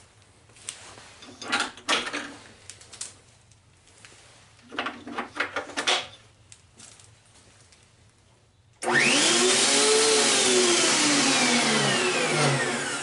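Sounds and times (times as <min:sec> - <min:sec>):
knocking and rattling: 0:04.7 - 0:06.2.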